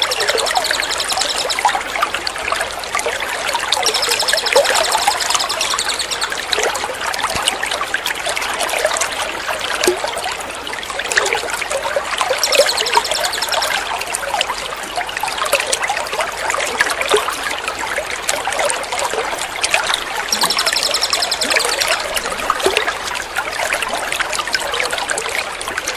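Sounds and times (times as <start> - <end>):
songbird chirping: 0.0 - 1.7, 3.8 - 6.7, 12.4 - 13.8, 20.3 - 22.8
water trickling and splashing: 0.0 - 25.9.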